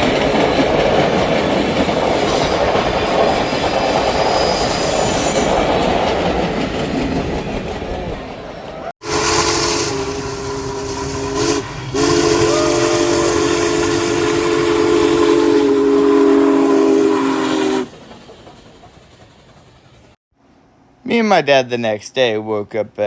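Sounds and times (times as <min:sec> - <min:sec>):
steam hissing: 0:01.4 - 0:06.0
steam locomotive chime whistle: 0:09.0 - 0:18.0.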